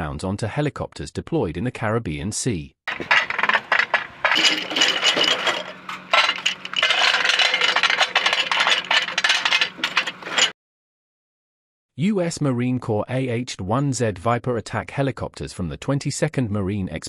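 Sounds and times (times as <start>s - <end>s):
metal hardware clinking and rattling: 2.9s - 10.5s.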